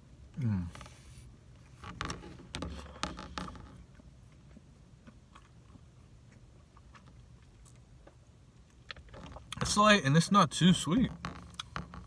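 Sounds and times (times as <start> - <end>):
chewing: 4.3 - 8.2.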